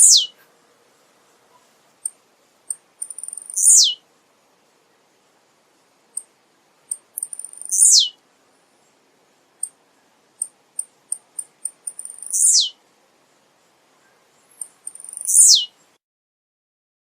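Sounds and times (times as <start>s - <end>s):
bird singing: 0.0s - 0.4s, 2.7s - 4.0s, 6.9s - 8.2s, 9.6s - 12.8s, 14.0s - 16.0s
single high bird chips: 6.9s - 8.1s.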